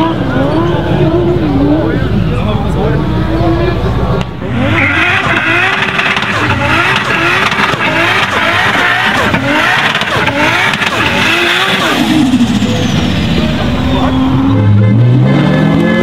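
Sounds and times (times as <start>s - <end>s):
spinning tyres hissing: 4.0s - 14.8s
car engine revving hard: 4.4s - 16.0s.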